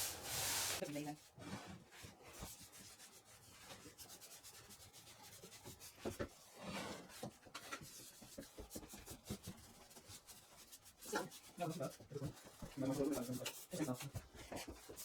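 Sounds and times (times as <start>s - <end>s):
sandpaper rubbing on wooden floorboards: 0.0s - 0.8s, 9.0s - 15.0s.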